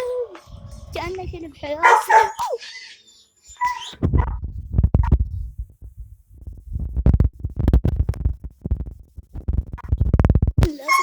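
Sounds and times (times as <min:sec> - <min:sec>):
low thuds and rubbing on microphone: 0:00.4 - 0:01.8, 0:03.6 - 0:10.7.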